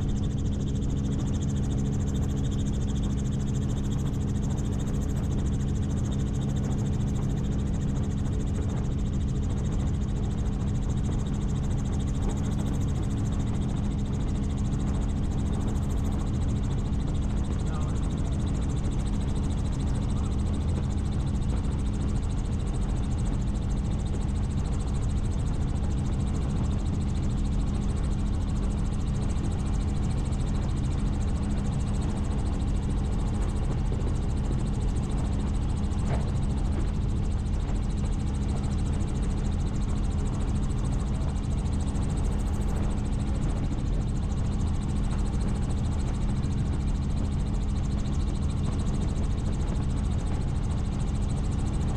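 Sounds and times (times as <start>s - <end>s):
helicopter rotor and engine drone: 0.0s - 51.9s.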